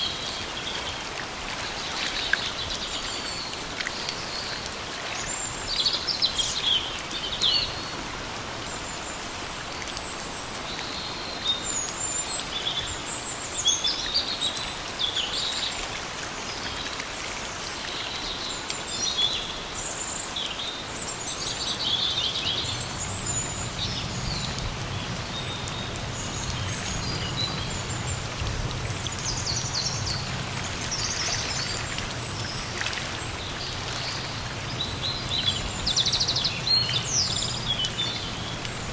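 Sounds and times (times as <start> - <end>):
steady rain falling: 0.0 - 38.9
birds chirping: 20.3 - 38.9.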